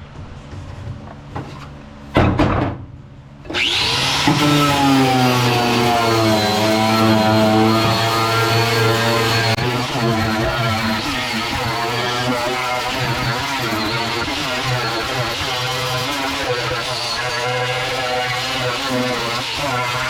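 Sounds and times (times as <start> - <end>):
power tool whining on metal: 3.5 - 20.0.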